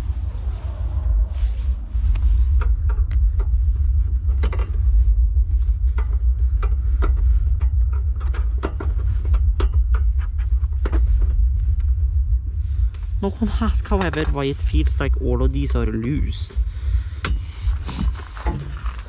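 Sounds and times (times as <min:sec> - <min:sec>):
steady low rumble: 0:00.0 - 0:19.0
clicks and knocks of parts handled: 0:05.9 - 0:11.3.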